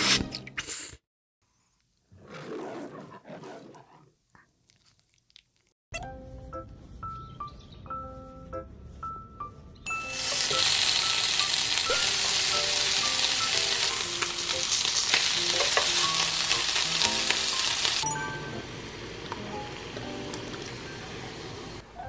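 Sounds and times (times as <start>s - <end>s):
food sizzling in a pan: 10.0s - 21.8s.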